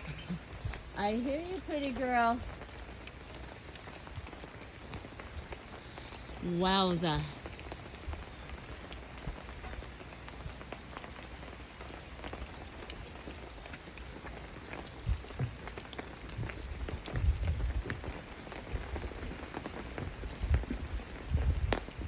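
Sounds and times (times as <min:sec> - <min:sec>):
steady rain with drips: 0:00.0 - 0:22.0
wind buffeting microphone: 0:13.0 - 0:22.0.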